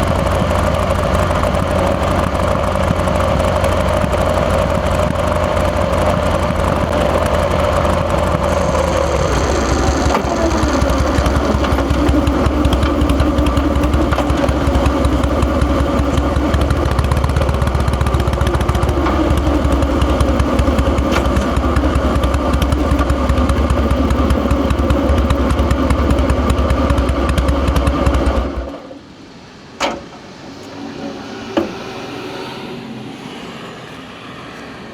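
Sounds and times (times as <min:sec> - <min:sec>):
motorcycle engine rumbling: 0:00.0 - 0:28.8
sharp clicks: 0:06.4 - 0:25.2.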